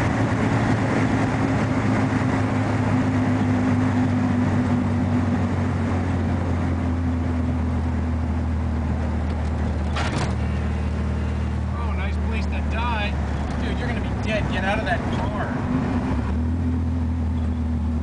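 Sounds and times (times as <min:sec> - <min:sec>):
car engine droning: 0:00.0 - 0:18.0
road noise: 0:00.0 - 0:18.0.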